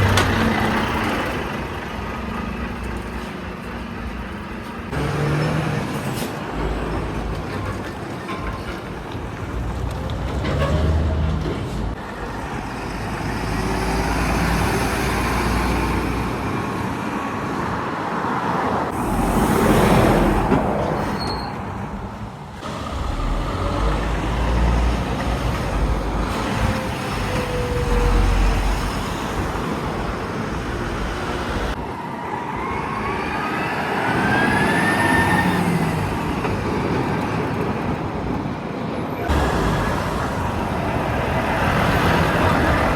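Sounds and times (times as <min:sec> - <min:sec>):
trucks and traffic passing: 0:00.0 - 0:42.9.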